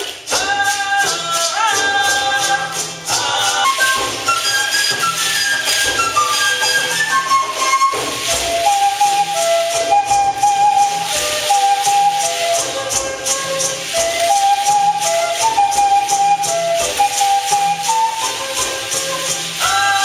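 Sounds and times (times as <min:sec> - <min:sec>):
flute playing slow melody: 0:03.6 - 0:20.0
rattles shaking: 0:10.7 - 0:20.0.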